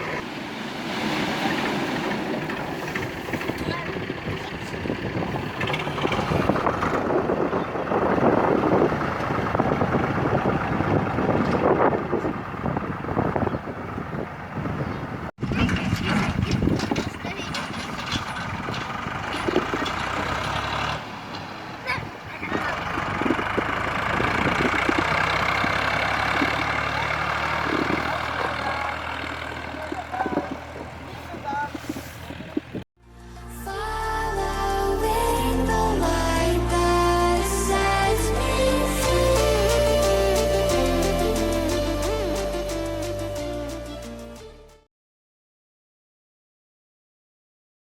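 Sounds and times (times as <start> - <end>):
tractor diesel engine running: 0.0 - 44.8
mechanical clatter: 15.4 - 20.1.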